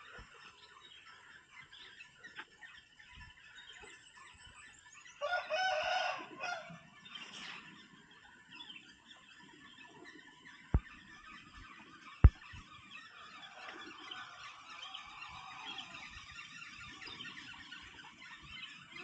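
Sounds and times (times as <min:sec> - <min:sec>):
rooster crowing: 0:05.2 - 0:06.7.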